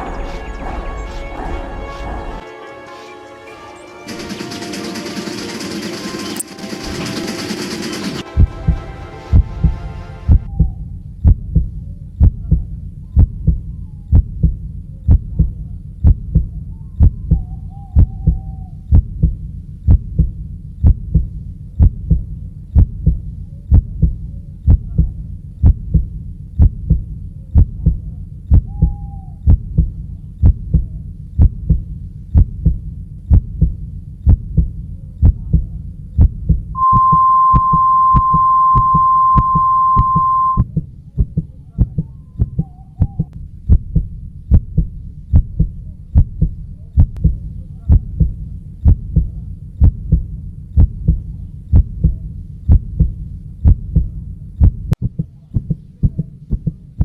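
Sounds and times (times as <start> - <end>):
low heartbeat-like thumps: 0.0 - 2.4, 8.1 - 57.0
steady high beep: 36.8 - 40.6.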